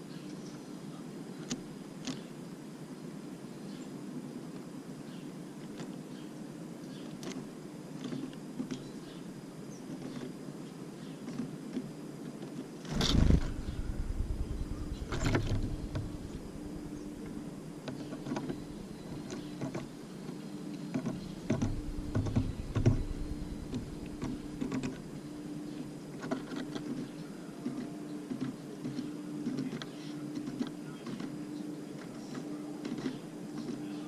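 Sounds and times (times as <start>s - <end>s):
steady low hum: 12.0s - 34.0s
birds landing thumps: 12.9s - 19.9s, 20.9s - 25.1s
beaks tapping on feeder: 20.9s - 25.0s.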